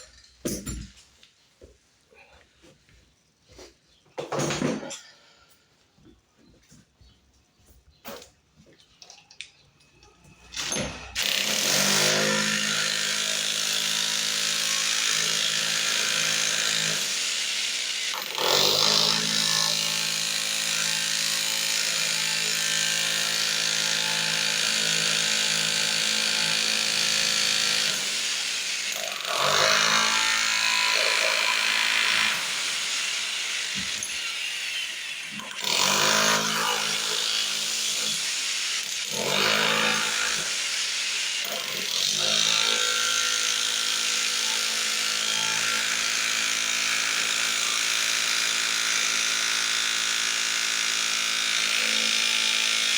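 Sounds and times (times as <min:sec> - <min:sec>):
electric power tool cutting: 0:10.7 - 0:52.9.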